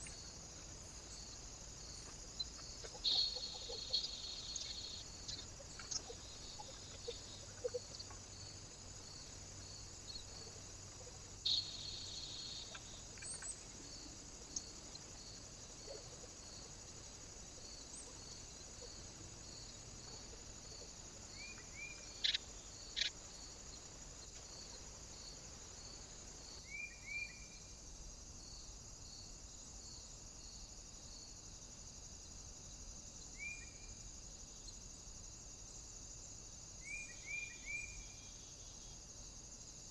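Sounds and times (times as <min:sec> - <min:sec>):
steady high hiss: 0:00.0 - 0:39.9
faint small bird chirps: 0:02.0 - 0:08.2, 0:10.0 - 0:13.7, 0:21.3 - 0:23.2, 0:26.6 - 0:27.6, 0:33.3 - 0:34.0, 0:36.8 - 0:38.7.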